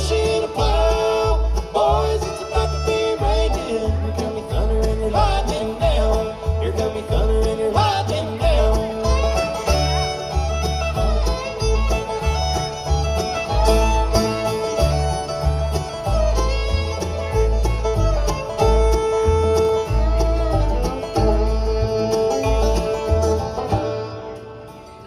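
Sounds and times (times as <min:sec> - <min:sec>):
live country band instrumental: 0:00.0 - 0:25.0.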